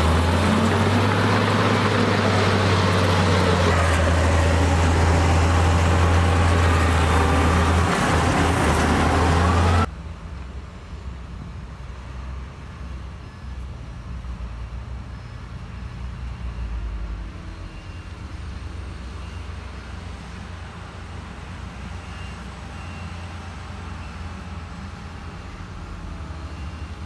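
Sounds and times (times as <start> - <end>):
heavy diesel machine engine rumble: 0.0 - 9.9.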